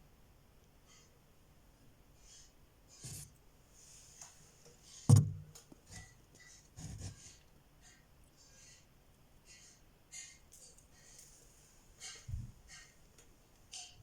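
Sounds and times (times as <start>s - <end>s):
sharp knock: 5.1s - 5.5s.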